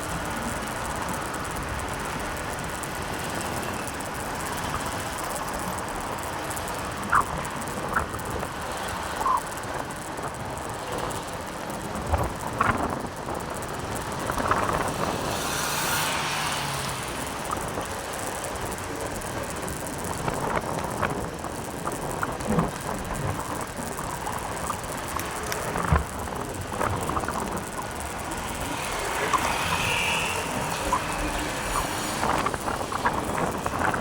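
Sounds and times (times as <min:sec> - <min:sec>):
motorcycle road and wind noise: 0:00.0 - 0:34.0
small clicks and knocks: 0:00.0 - 0:34.0
hiss: 0:28.3 - 0:33.9.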